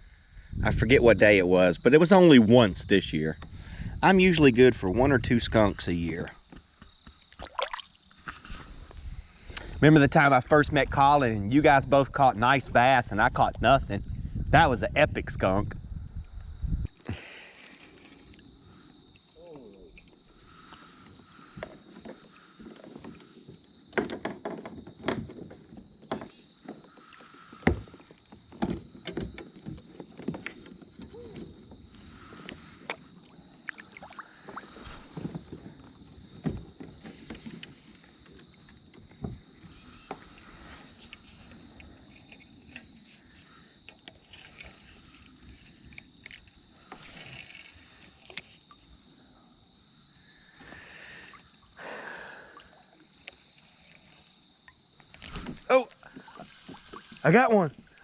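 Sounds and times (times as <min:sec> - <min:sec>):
water swishing with paddle strokes: 0:07.1 - 0:09.4, 0:17.2 - 0:49.4, 0:50.1 - 0:58.0
knocks and clicks against hull: 0:19.8 - 0:33.8, 0:34.5 - 0:45.2.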